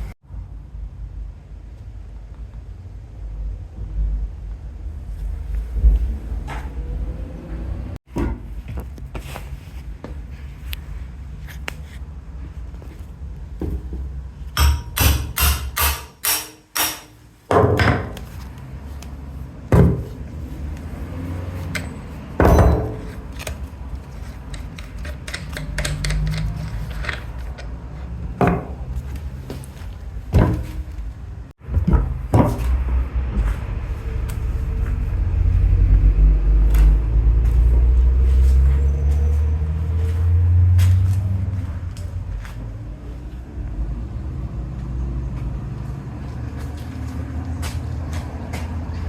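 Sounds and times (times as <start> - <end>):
hand tools knocking on metal: 13.6 - 18.3.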